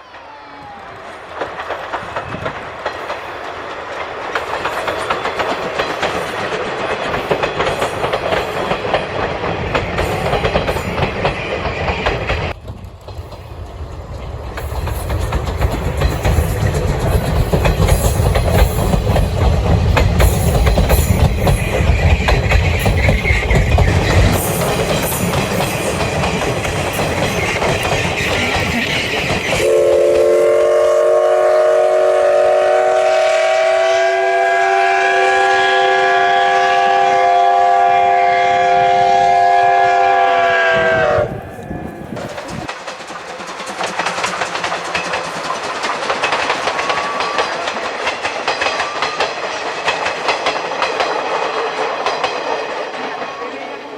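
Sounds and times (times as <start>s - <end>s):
rail clatter: 0.0s - 31.3s, 35.8s - 53.9s
steam locomotive rumbling: 0.0s - 53.9s
long steam whistle: 29.6s - 41.9s.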